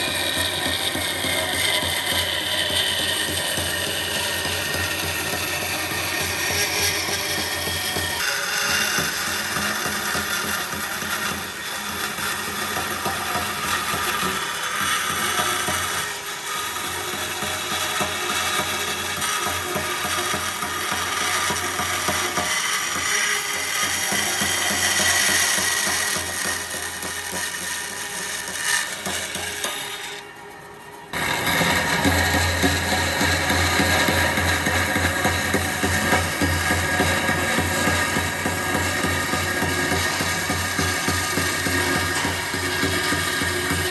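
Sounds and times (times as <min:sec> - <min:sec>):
woodworking power tool rattling: 0:00.0 - 0:43.9.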